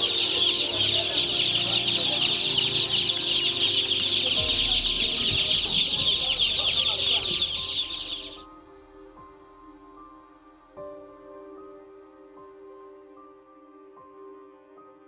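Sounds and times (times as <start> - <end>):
chicks cheeping: 0.0 - 8.4.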